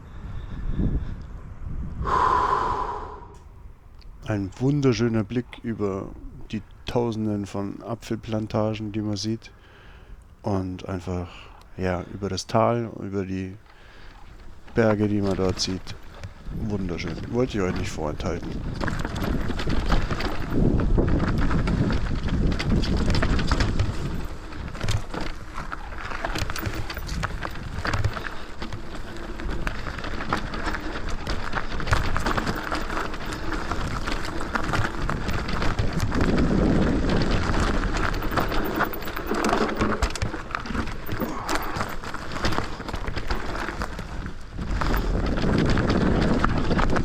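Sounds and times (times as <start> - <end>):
wind rumbling on microphone: 0.0 - 47.0
tyres crunching over gravel: 4.0 - 47.0
bike knocks and rattles: 13.7 - 47.0.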